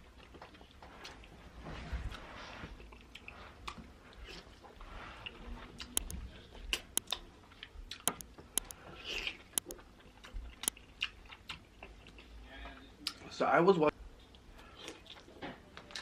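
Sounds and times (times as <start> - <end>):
sharp crackling clicks: 8.1 - 8.8, 9.6 - 9.8.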